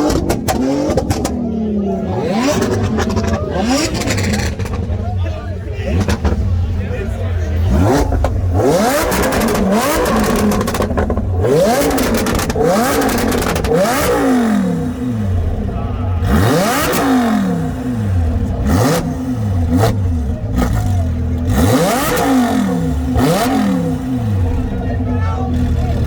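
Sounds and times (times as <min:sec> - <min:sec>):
car engine revving: 0:00.0 - 0:26.0
sharp exhaust cracks: 0:07.7 - 0:24.7.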